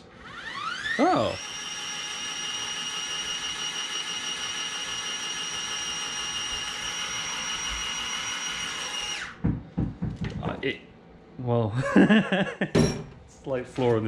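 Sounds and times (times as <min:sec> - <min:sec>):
small electric motor whining: 0:00.2 - 0:09.4.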